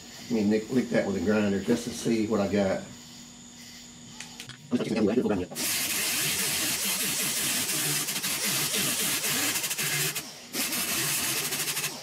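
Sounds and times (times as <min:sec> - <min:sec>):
grinder grinding metal: 0:05.5 - 0:12.0.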